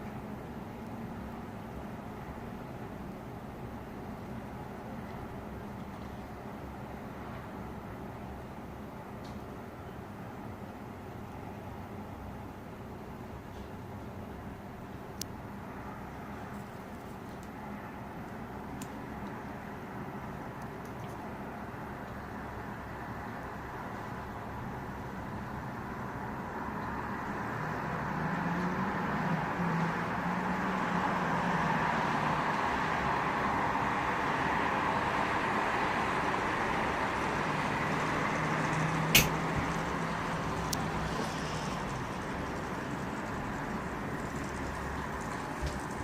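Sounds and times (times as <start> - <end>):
road traffic passing: 0.0 - 46.0
sharp click: 39.2 - 39.4.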